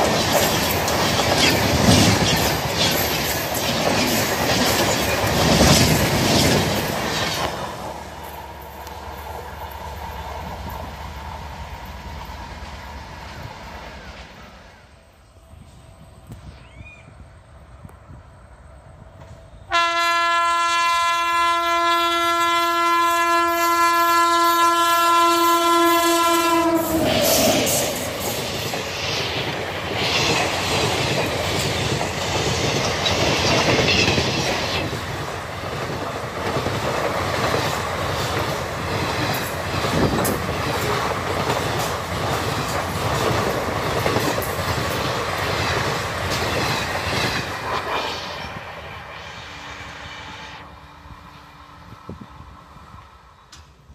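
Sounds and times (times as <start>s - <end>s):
clickety-clack of wheels: 0.0s - 9.4s, 28.2s - 48.1s
train rushing past: 0.0s - 53.9s
train horn blast: 19.6s - 27.4s.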